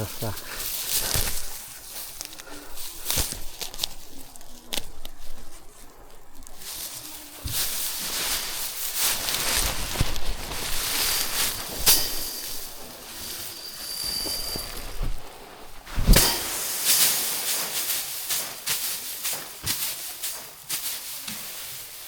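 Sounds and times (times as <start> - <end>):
dry straw rustling: 0.0 - 22.0
grain pattering: 0.0 - 22.0
sheaves struck with sharp knocks: 15.9 - 21.6.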